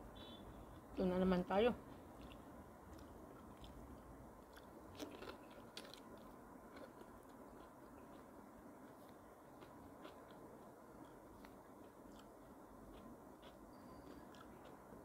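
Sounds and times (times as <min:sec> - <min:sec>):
faint close-up chewing: 0:01.8 - 0:15.0.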